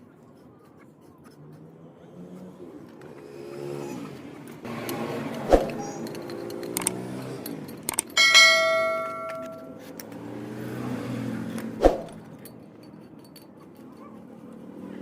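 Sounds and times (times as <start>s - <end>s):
metal part ringing when struck: 7.9s - 9.8s.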